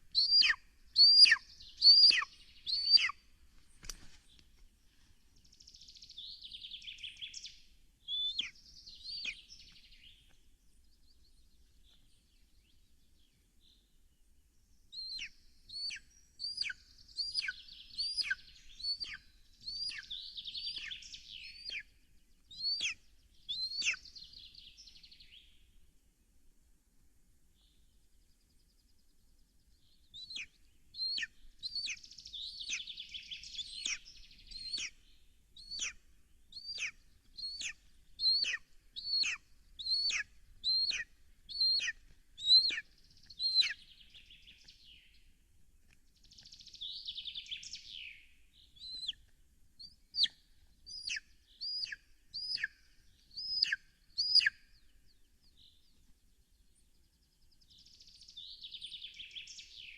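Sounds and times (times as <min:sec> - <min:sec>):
bird whistling calls: 0:00.1 - 0:03.2, 0:15.0 - 0:21.8, 0:22.5 - 0:24.0, 0:30.2 - 0:35.0, 0:35.6 - 0:36.0, 0:36.6 - 0:42.8, 0:43.4 - 0:43.8, 0:49.8 - 0:54.6
rustling: 0:03.4 - 0:05.1.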